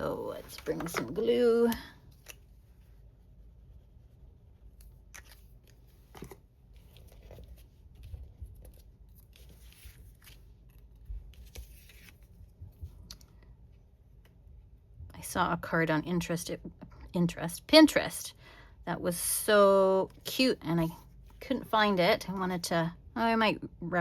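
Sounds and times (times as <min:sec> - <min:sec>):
paper rustling and clicking: 0:00.4 - 0:02.4, 0:05.1 - 0:12.4.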